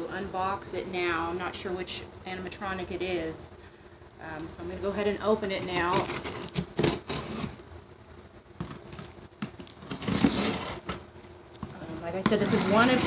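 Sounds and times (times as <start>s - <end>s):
cardboard scraping and tearing: 5.6s - 7.6s, 9.7s - 11.0s, 11.7s - 13.0s.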